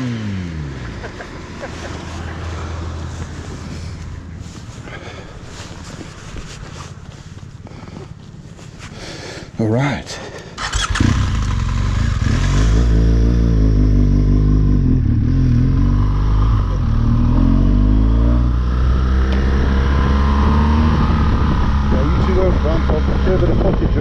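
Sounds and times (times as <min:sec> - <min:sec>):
motorcycle engine accelerating: 0:00.0 - 0:04.1, 0:10.6 - 0:24.0.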